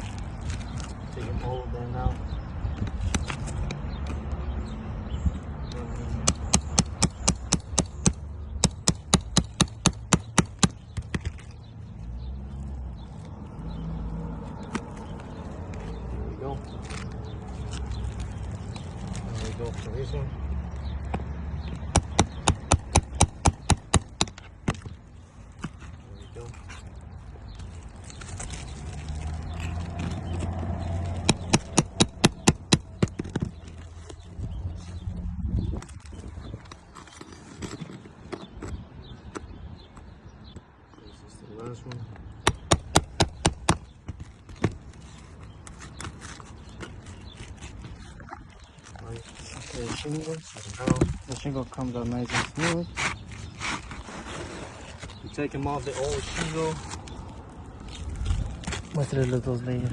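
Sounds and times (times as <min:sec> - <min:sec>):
sharp knocks of hand tool: 0:06.2 - 0:11.3, 0:21.8 - 0:24.9, 0:31.2 - 0:33.5.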